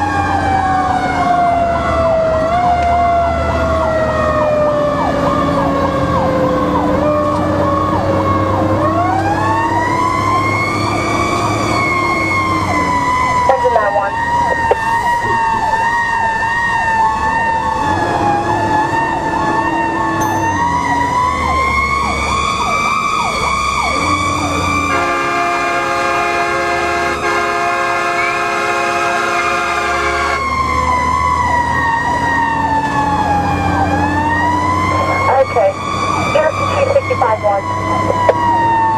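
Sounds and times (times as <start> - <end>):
fire engine siren wailing: 0.0 - 38.9
long horn blast: 24.9 - 30.5.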